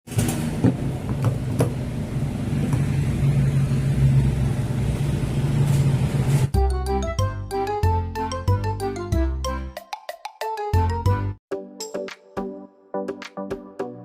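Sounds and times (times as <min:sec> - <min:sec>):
engine humming steadily: 0:00.8 - 0:06.5.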